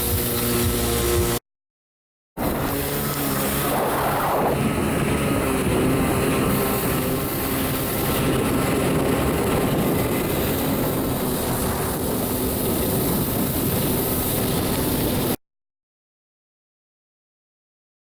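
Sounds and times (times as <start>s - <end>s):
jet ski engine running: 0.0s - 1.4s, 2.4s - 15.4s
rushing water noise: 5.4s - 15.4s.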